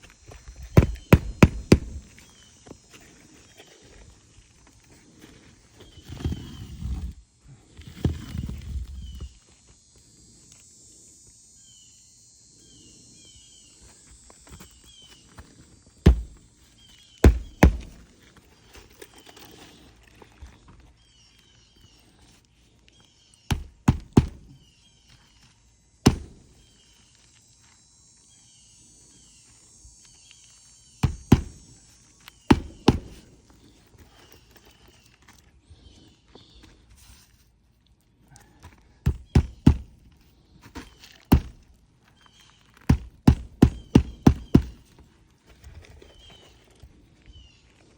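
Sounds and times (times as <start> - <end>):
hand tool knocking on roof: 0.8 - 2.0, 16.1 - 16.4, 17.2 - 18.0, 23.5 - 24.5, 26.1 - 26.4, 31.0 - 31.6, 39.1 - 39.9, 42.9 - 44.8.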